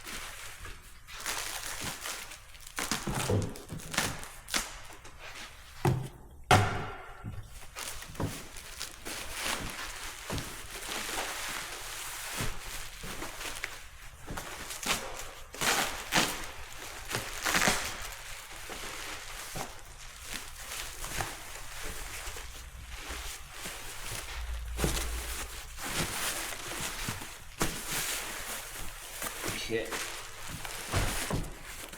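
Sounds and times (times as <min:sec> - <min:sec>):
packing paper and bubble wrap crinkling: 0:00.0 - 0:05.8, 0:07.4 - 0:31.9.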